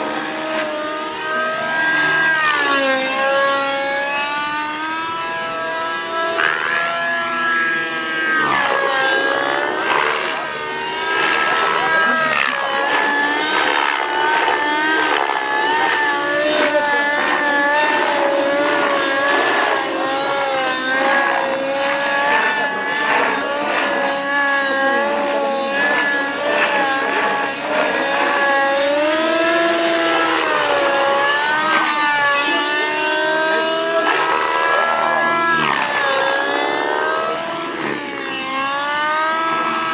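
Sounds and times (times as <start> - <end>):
model helicopter engine and rotor whine: 0.0 - 39.9.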